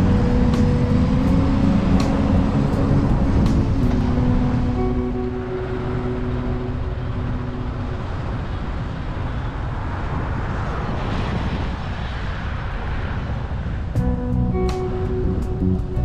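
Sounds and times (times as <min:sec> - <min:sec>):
vehicle road noise rumbling: 0:00.0 - 0:16.0
faint held tones: 0:04.0 - 0:09.0.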